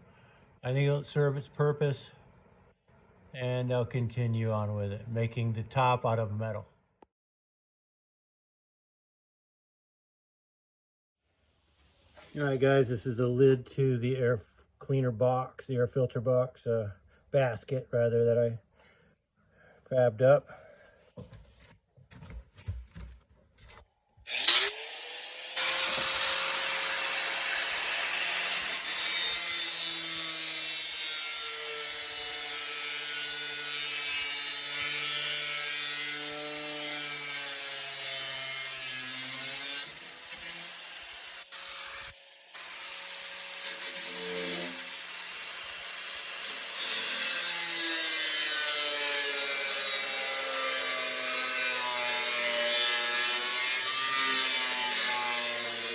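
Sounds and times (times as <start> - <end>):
power tool cutting sheet steel: 24.3 - 55.9.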